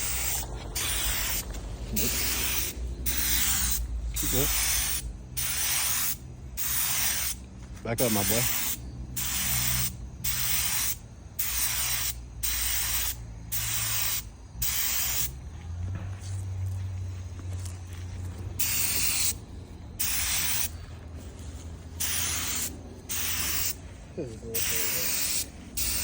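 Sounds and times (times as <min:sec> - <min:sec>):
paint spray gun hissing: 0:00.0 - 0:07.4, 0:08.0 - 0:15.4, 0:18.6 - 0:19.4, 0:20.0 - 0:20.8, 0:22.0 - 0:26.0.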